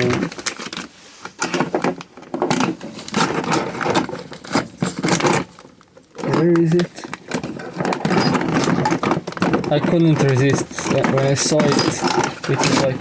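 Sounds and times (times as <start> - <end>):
tools knocking and clinking: 7.3 - 13.0.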